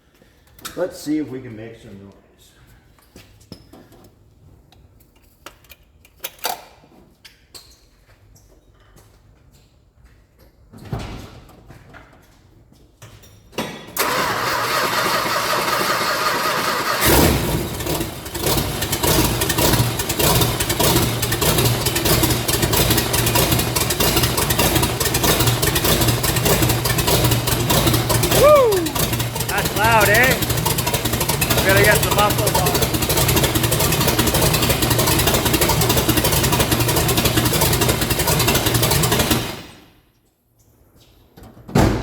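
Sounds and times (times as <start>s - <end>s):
loud car engine idling: 14.0s - 39.7s.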